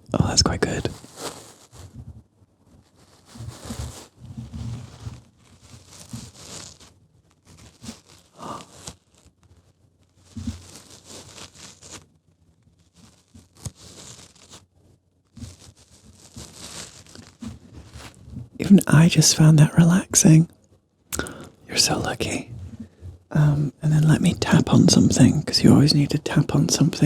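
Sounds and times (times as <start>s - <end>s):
crinkling and crackling: 3.0s - 9.3s, 10.2s - 12.0s, 12.8s - 14.6s, 15.4s - 20.4s.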